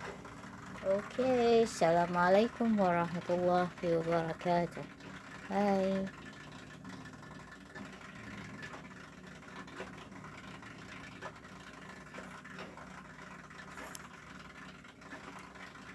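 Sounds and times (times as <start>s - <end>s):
low motor hum: 0.0s - 15.9s.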